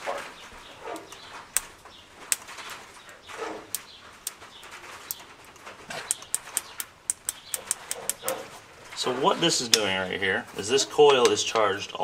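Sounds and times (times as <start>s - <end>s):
sharp metallic clicks: 6.0s - 8.6s.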